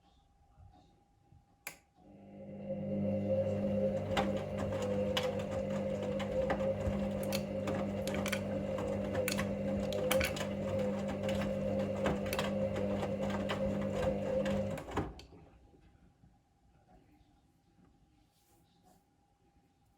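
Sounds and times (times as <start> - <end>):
washing machine drum tumbling: 2.8 - 15.2.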